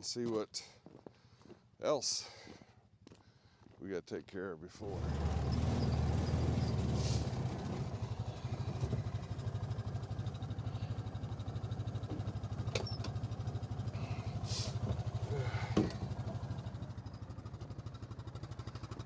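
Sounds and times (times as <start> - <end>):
vehicle engine puttering: 4.8 - 19.0.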